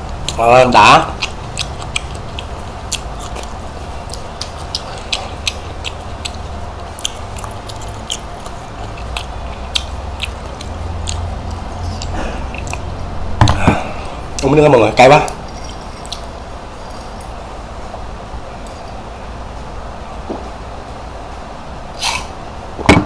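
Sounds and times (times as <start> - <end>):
person chewing food: 0.0 - 14.6, 15.2 - 17.4
low steady hum: 0.0 - 23.0.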